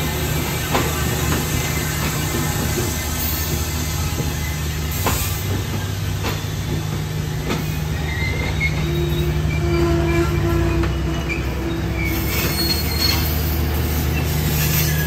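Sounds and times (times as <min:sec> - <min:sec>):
thin wheel squeal: 0:08.0 - 0:15.0.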